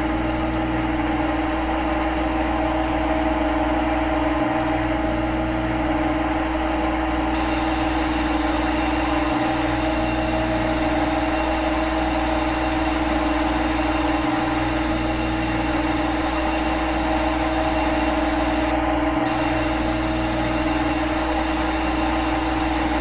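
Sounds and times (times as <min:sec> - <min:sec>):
machine spindle hum: 0:07.4 - 0:23.0.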